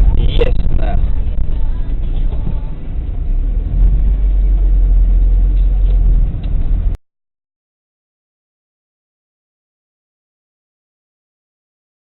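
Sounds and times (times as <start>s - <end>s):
deep vehicle rumble: 0.0s - 7.0s.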